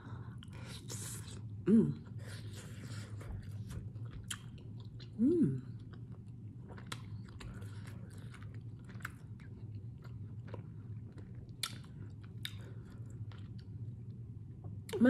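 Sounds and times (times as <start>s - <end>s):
low steady hum: 0.0s - 15.0s
person chewing food: 2.3s - 15.0s.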